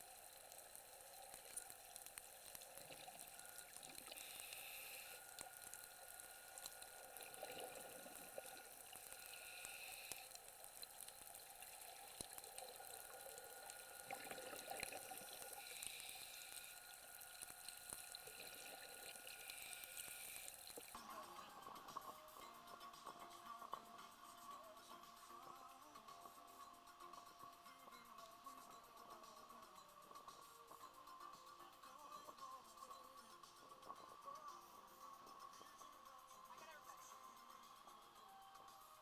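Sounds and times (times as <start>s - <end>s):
fine underwater crackle: 0.0s - 21.0s
scuba breathing hiss: 0.0s - 21.0s.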